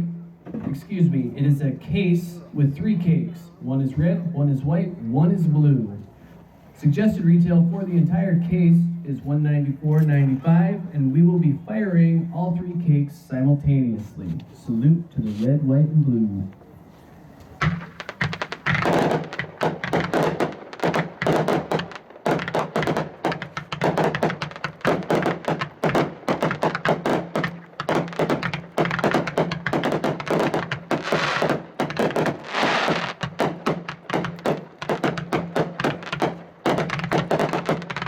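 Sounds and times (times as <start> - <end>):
firework aerial bursts: 16.7 - 38.0
firework launch thumps: 17.4 - 38.0.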